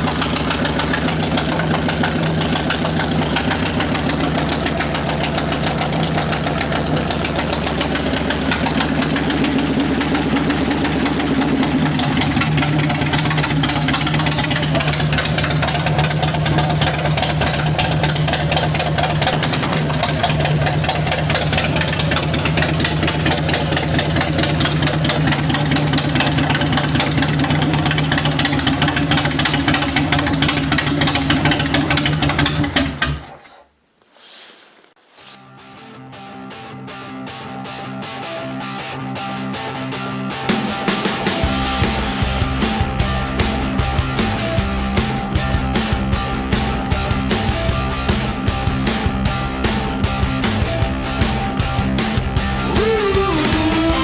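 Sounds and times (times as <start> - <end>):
motorcycle engine idling: 0.0 - 33.2, 40.5 - 54.0.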